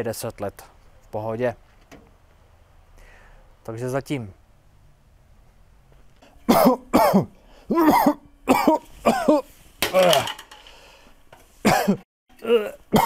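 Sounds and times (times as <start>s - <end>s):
person coughing: 6.4s - 10.4s, 11.6s - 13.0s.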